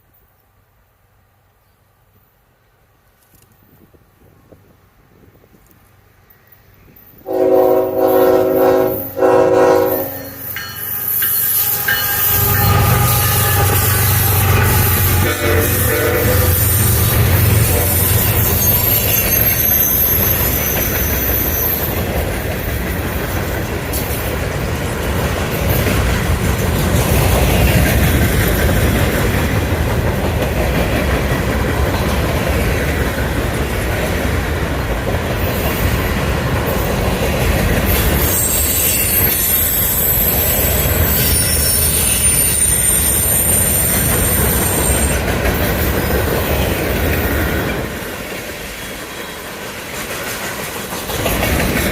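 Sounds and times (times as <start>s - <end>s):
train wheels clacking on rails: 7.2s - 51.9s
high-pitched wheel squeal: 9.7s - 22.0s, 38.0s - 45.2s.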